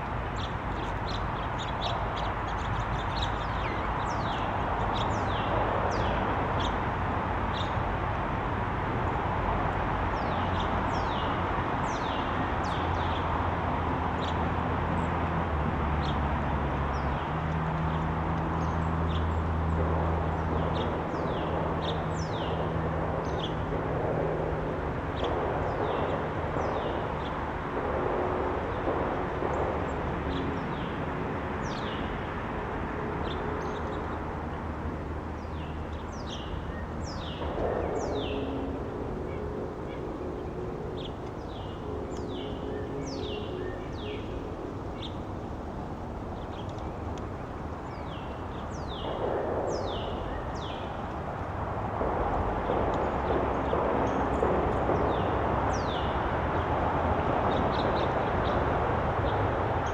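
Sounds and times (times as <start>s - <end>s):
small birds chirping: 0.0s - 8.0s, 33.1s - 59.9s
low hum: 12.9s - 59.9s.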